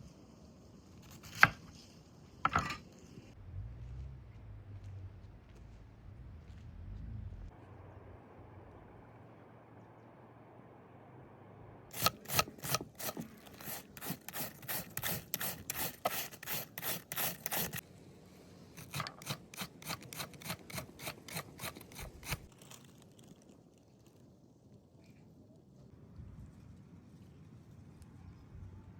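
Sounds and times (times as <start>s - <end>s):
rapid scraping strokes: 11.9s - 17.8s, 18.8s - 22.5s.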